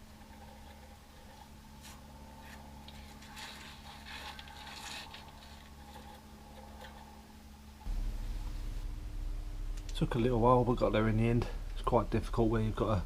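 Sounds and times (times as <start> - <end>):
faint scraping and rustling: 0.0 - 9.1
steady low hum: 0.0 - 13.0.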